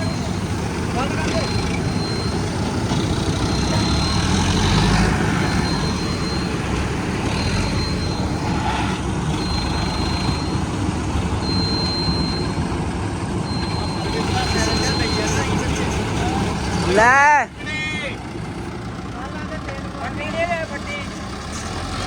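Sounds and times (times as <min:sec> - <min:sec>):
tractor diesel engine running: 0:00.0 - 0:22.0
thin high tone: 0:13.4 - 0:16.5.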